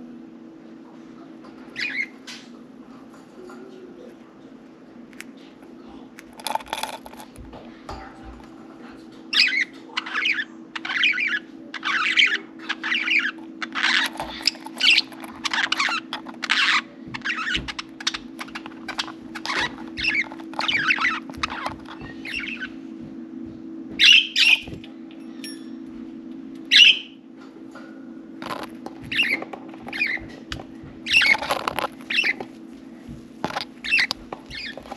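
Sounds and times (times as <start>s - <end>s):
steady low hum: 0.0s - 34.9s
budgerigars chattering: 9.4s - 22.7s, 26.7s - 27.1s, 31.1s - 32.4s, 33.5s - 34.9s.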